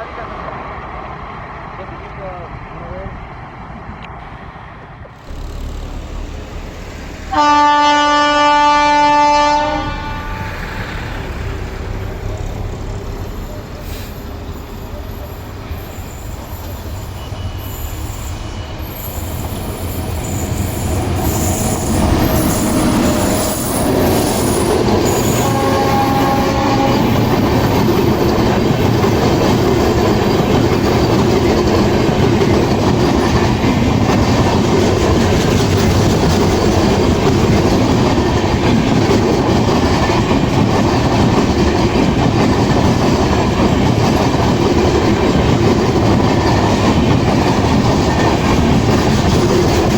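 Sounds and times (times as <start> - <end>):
train wheels rumbling on rails: 0.0 - 49.9
short pitched tone: 5.2 - 8.3.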